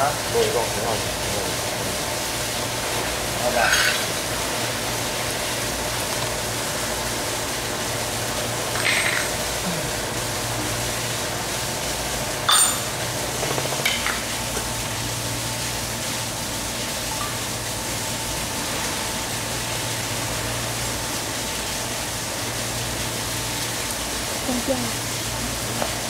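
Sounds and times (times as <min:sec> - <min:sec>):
machine humming and hissing: 0:00.0 - 0:26.0.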